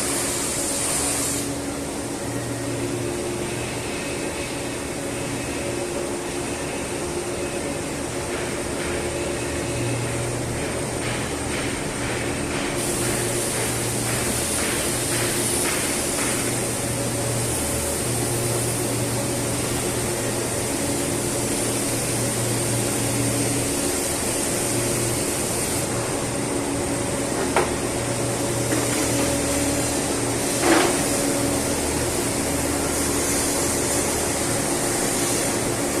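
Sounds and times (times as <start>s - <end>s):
high hiss: 0.0s - 1.8s
industrial machinery humming: 0.0s - 36.0s.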